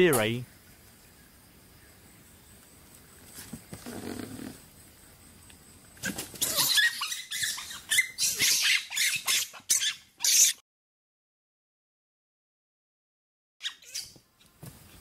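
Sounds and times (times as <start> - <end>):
small animals squeaking and chirping: 6.0 - 10.6, 13.6 - 14.2.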